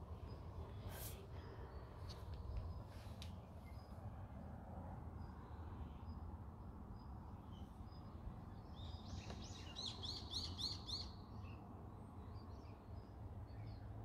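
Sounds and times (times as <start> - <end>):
low outdoor rumble: 0.0 - 10.4
small bird chirping: 7.0 - 11.6.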